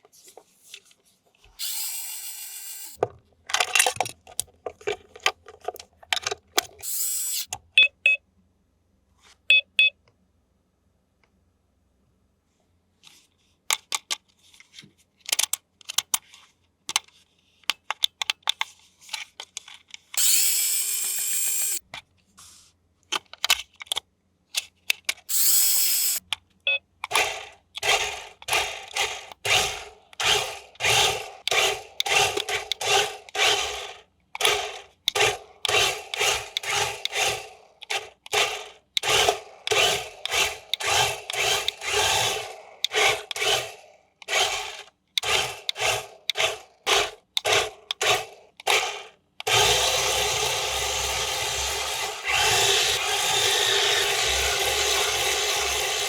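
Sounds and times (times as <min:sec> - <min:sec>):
small electric motor whirring: 0:01.6 - 0:03.0, 0:06.8 - 0:07.5, 0:20.2 - 0:21.8, 0:25.3 - 0:26.2, 0:27.2 - 0:47.1, 0:48.0 - 0:56.0
clicks and handling: 0:02.9 - 0:06.9, 0:13.0 - 0:20.2, 0:23.0 - 0:25.3.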